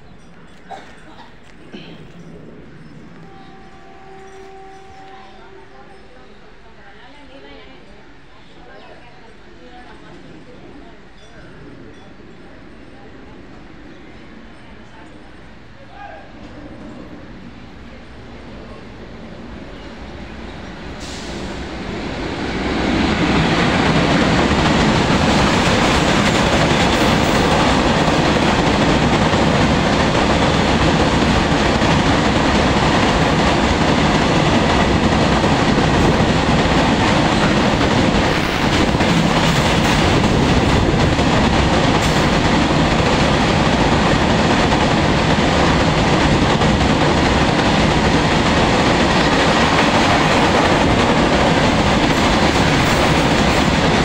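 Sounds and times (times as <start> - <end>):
train wheels rumbling on rails: 16.4 - 54.0.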